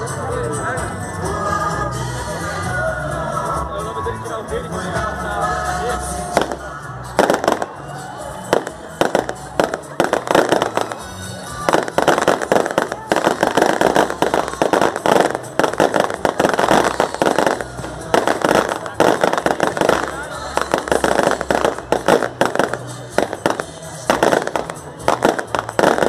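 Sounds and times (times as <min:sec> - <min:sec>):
fireworks banging and crackling: 0:06.2 - 0:26.0.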